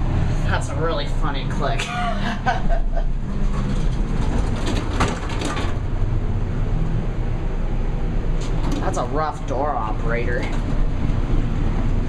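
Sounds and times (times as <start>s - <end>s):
elevator low rumble: 0.0s - 12.0s
elevator door clunks: 3.4s - 6.0s, 8.4s - 9.1s.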